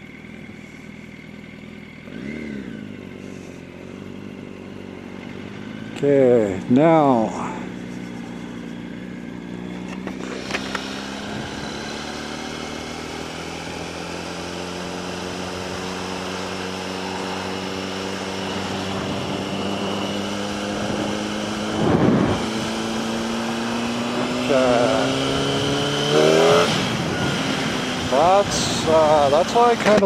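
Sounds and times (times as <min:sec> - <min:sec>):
motorcycle engine pulling: 0:05.2 - 0:30.0
whoosh of wind: 0:17.5 - 0:24.4, 0:25.2 - 0:29.3.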